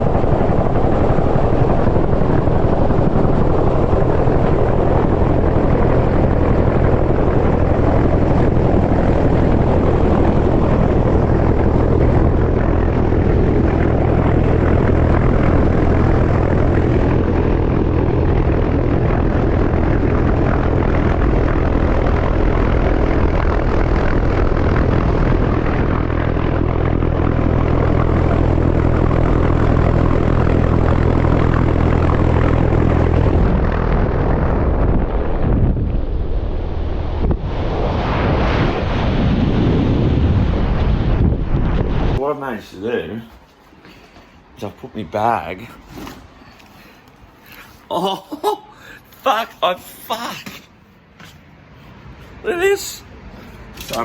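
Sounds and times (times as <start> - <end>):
helicopter rotor and engine: 0.0 - 54.0.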